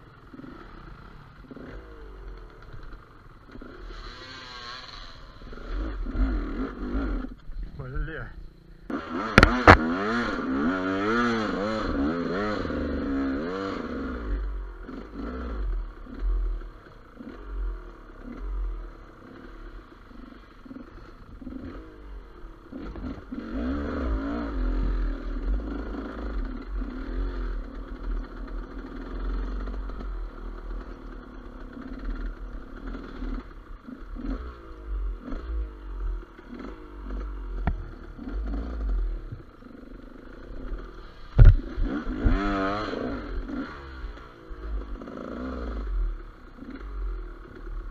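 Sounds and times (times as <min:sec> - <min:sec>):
motorcycle engine revving: 0:00.0 - 0:47.9
knocks and clatter from bike: 0:09.3 - 0:10.1, 0:36.4 - 0:39.5, 0:40.6 - 0:43.0.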